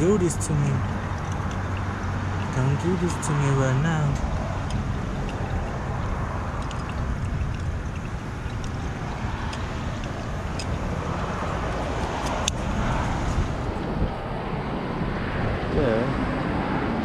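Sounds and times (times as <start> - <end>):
low outdoor rumble: 0.0 - 17.0
clicks of small metal parts: 6.6 - 8.8.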